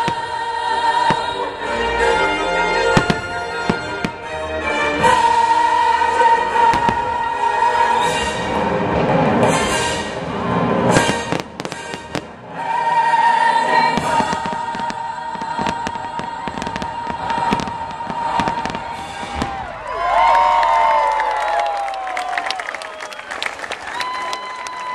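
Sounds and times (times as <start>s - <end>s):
fireworks bangs and crackling: 0.0s - 1.5s, 2.8s - 4.4s, 6.6s - 12.8s, 13.6s - 20.3s
orchestral music: 0.0s - 20.8s
fireworks whistles: 7.9s - 8.6s, 9.4s - 12.4s, 13.7s - 19.7s
crowd cheering: 14.0s - 24.9s.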